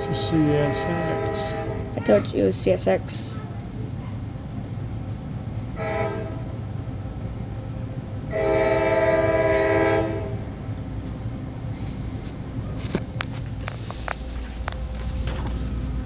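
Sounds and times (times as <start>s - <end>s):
locomotive air horn blasts: 0.0s - 2.1s, 5.8s - 6.5s, 8.3s - 10.4s
freight train rumbling: 0.0s - 16.0s.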